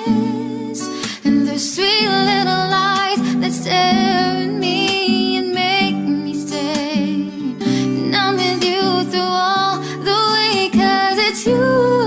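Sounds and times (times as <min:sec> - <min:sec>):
acoustic guitar: 0:00.0 - 0:12.0.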